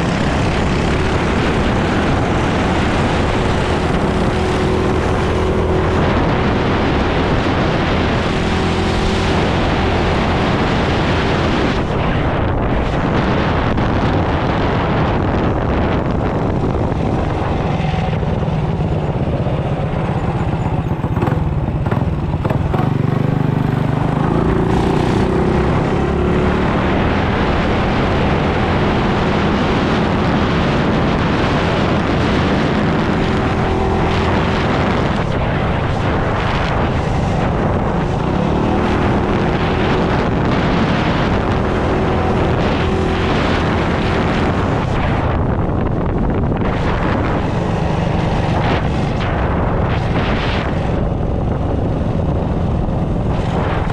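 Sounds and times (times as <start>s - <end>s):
mini bike engine running: 0.0s - 5.8s, 16.2s - 25.0s
wind on microphone: 0.0s - 53.9s.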